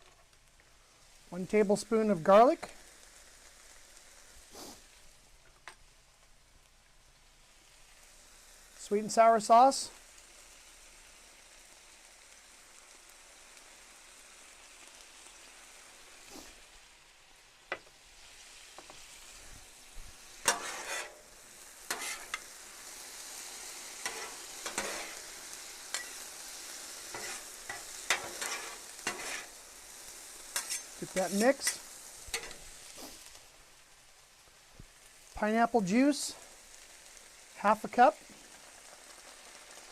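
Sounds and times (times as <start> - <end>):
food sizzling on a griddle: 0.0 - 39.9
spatula scraping a griddle: 16.2 - 16.6, 20.2 - 29.7, 30.4 - 33.4.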